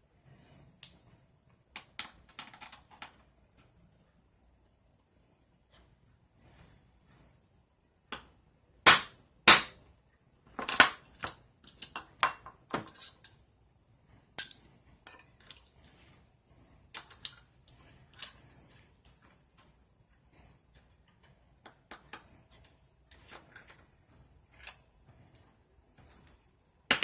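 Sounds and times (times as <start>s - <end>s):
small tools clicking and tapping: 10.6s - 13.4s, 14.4s - 15.7s, 16.9s - 19.7s, 20.8s - 23.9s.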